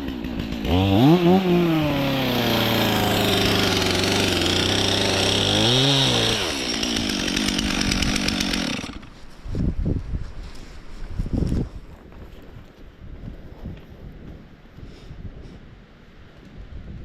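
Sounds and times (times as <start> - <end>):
chainsaw cutting wood: 0.0 - 9.3.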